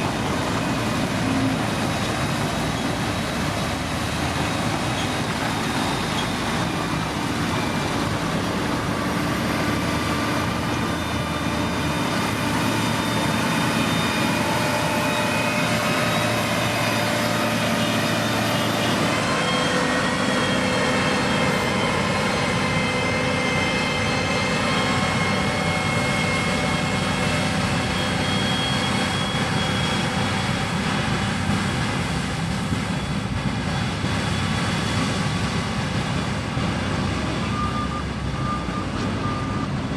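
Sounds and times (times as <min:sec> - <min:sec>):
whining tones: 0:00.0 - 0:31.1
heavy diesel engines running: 0:00.0 - 0:39.9.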